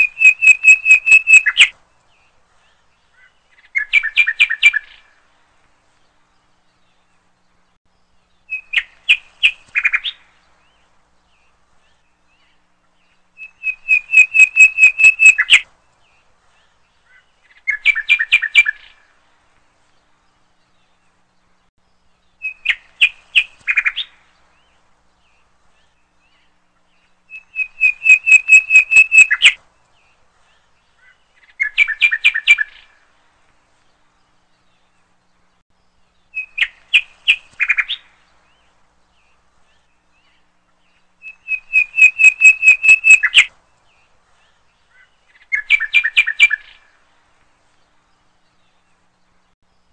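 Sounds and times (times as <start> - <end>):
bird chirping: 0.0 - 49.9.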